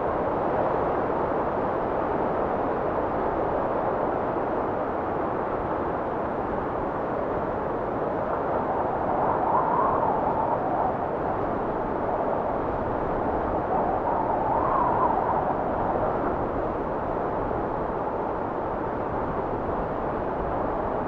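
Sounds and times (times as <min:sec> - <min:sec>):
blizzard wind blowing: 0:00.0 - 0:21.0
faint wind whistle: 0:08.6 - 0:17.0.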